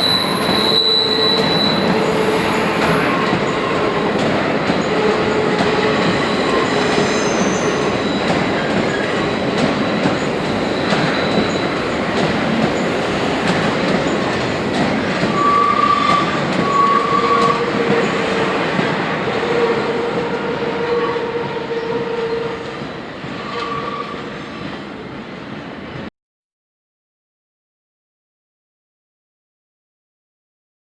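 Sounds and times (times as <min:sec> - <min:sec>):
shrill wheel squeals: 0:00.0 - 0:13.0, 0:15.4 - 0:18.7, 0:19.3 - 0:24.7.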